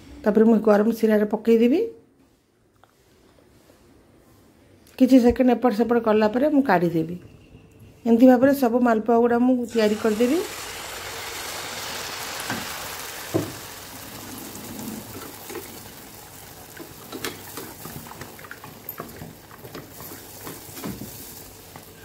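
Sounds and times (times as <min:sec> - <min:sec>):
batter sizzling in hot oil: 0:09.7 - 0:22.0
oil popping: 0:09.9 - 0:21.1.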